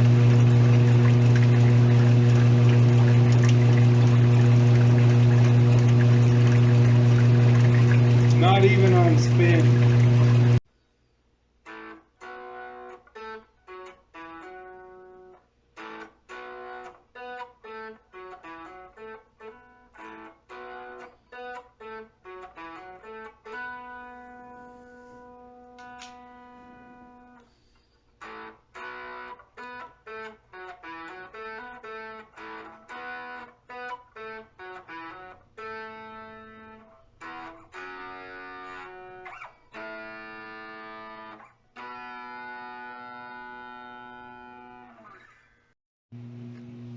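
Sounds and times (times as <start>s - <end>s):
overdriven electric guitar: 11.6s - 27.6s, 28.2s - 45.6s.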